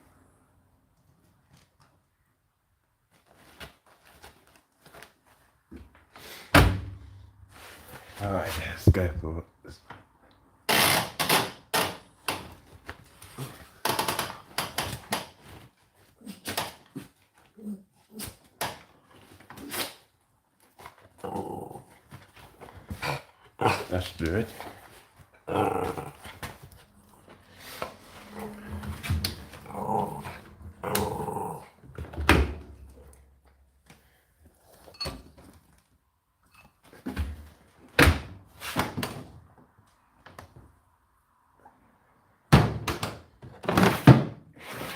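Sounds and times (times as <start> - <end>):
animal growling and whining: 21.2 - 22.0, 25.4 - 26.4, 27.8 - 31.8.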